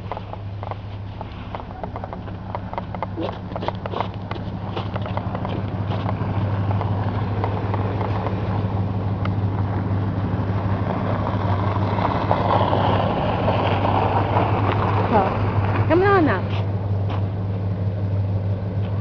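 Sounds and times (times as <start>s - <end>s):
footsteps crunching in snow: 0.0s - 8.7s
vehicle engine humming: 0.0s - 19.0s.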